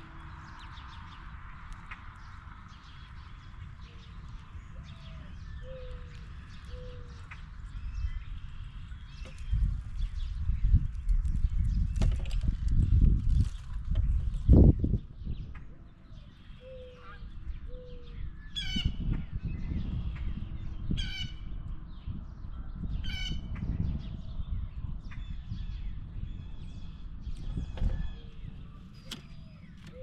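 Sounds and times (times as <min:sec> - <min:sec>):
steady low rumble: 0:00.0 - 0:16.5, 0:17.2 - 0:30.0
faint soft bird calls: 0:15.4 - 0:21.5
blue jay harsh calls: 0:18.6 - 0:19.0, 0:21.0 - 0:21.4, 0:23.0 - 0:23.4.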